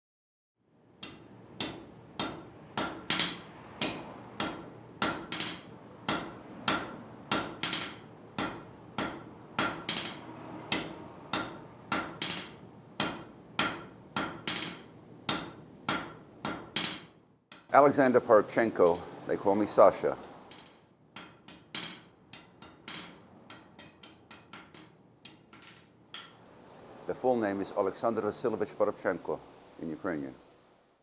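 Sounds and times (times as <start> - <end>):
hammer striking anvil: 1.0 - 17.7, 20.3 - 26.4.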